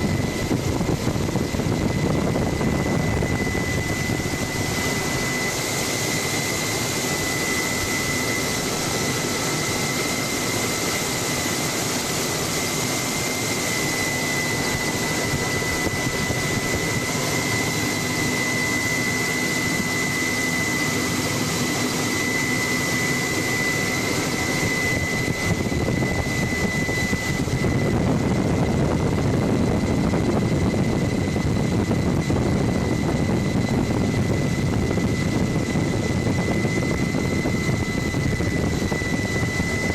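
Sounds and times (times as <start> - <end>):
helicopter engine and rotor noise: 0.0 - 39.9
high turbine whine: 0.0 - 39.9.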